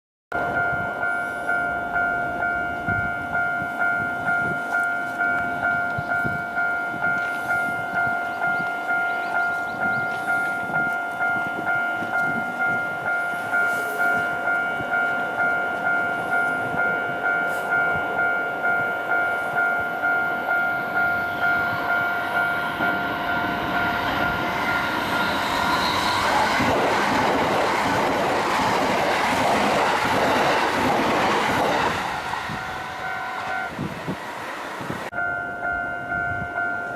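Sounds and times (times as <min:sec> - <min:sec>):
level crossing alarm chime: 0:00.4 - 0:27.6, 0:35.1 - 0:36.9
train passing: 0:00.4 - 0:36.9.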